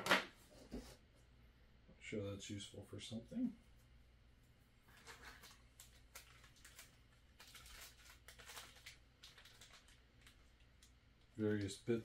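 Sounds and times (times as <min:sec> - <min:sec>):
plastic packaging crinkling: 0:04.9 - 0:11.7.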